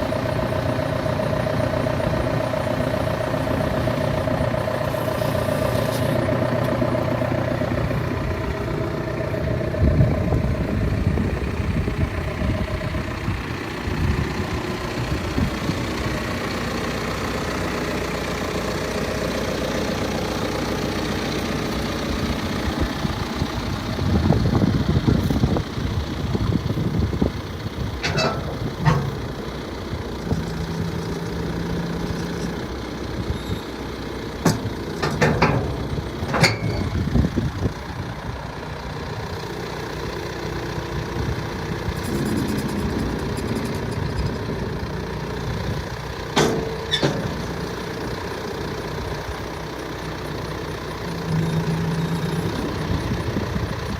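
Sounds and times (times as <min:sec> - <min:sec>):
tractor diesel engine idling: 0:00.0 - 0:53.9
short knocks and clanks: 0:28.0 - 0:29.5, 0:34.4 - 0:37.1, 0:46.3 - 0:47.8.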